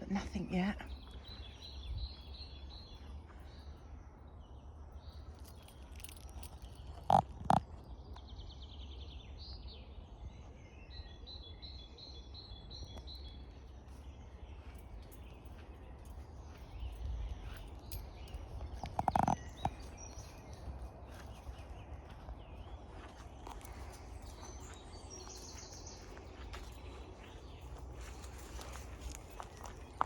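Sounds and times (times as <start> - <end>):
birds singing: 0.0 - 30.0.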